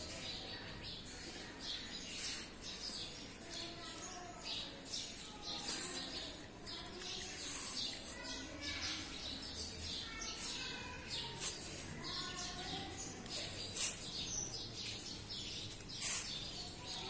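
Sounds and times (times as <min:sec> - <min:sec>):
small birds chirping: 0:00.0 - 0:17.0
loud sharp sounds: 0:15.7 - 0:17.0.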